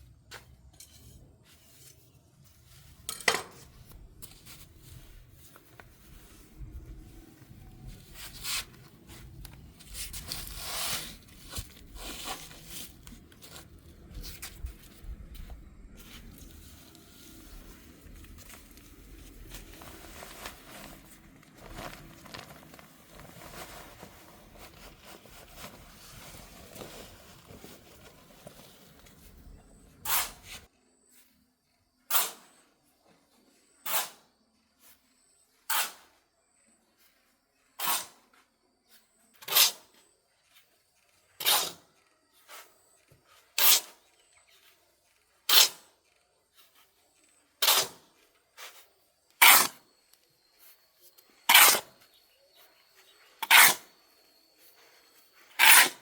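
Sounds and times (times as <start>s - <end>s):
handling knocks and rustling: 0.2s - 29.8s.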